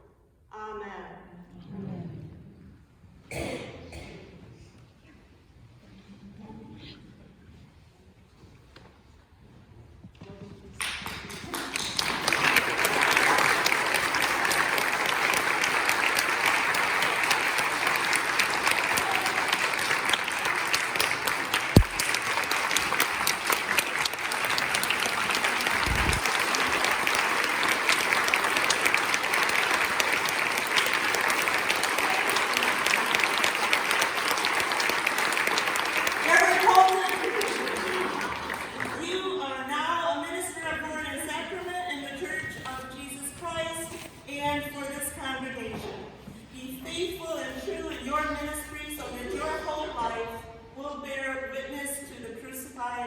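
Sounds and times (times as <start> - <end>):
congregation applauding: 10.8 - 39.2.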